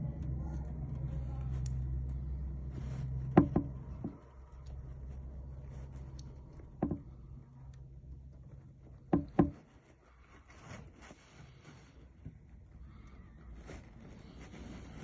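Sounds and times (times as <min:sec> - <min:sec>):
motor vehicle rumble: 0:00.0 - 0:10.2
sharp knocks: 0:03.4 - 0:04.2, 0:06.8 - 0:07.2, 0:09.1 - 0:09.7.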